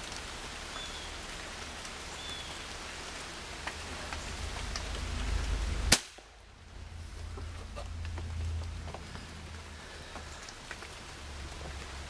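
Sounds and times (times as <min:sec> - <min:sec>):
pouring rain hiss: 0:00.0 - 0:12.0
raindrops ticking: 0:00.0 - 0:12.0
low rumble: 0:03.6 - 0:11.9.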